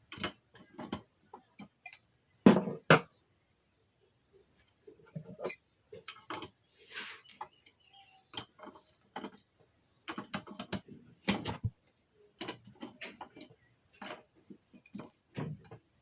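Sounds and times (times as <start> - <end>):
metallic clicks of hand tools: 1.6 - 2.1
short scrape: 6.7 - 7.3.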